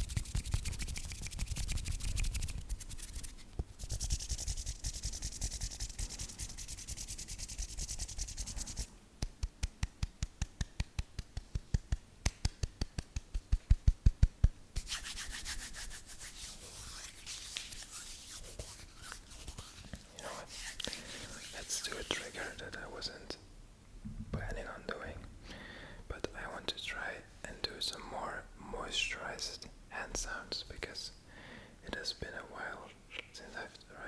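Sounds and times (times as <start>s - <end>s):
scratching and rubbing: 0.0s - 8.9s, 14.8s - 22.6s
quick evenly spaced strokes: 0.0s - 22.6s.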